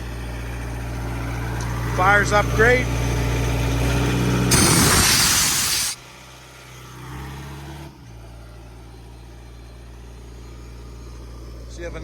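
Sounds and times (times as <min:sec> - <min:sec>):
loud rushing noise: 0:04.5 - 0:06.0.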